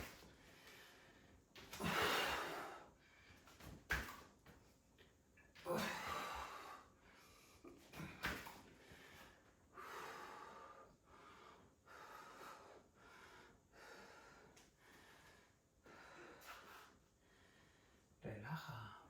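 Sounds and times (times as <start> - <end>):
woman breathing hard: 0.4 - 3.4, 8.8 - 18.1.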